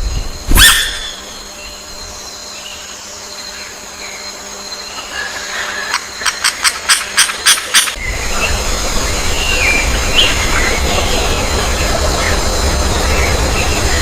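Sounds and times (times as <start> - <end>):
bird harsh calls: 0.5 - 1.9, 2.6 - 14.0
low rumble: 8.0 - 14.0.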